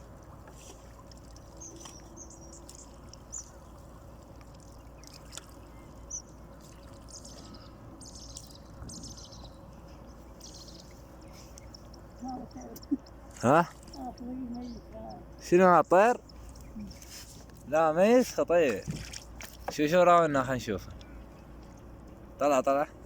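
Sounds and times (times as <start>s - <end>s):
water trickling and dripping: 0.0s - 15.2s, 18.6s - 20.0s
high bird chirps: 7.0s - 15.4s.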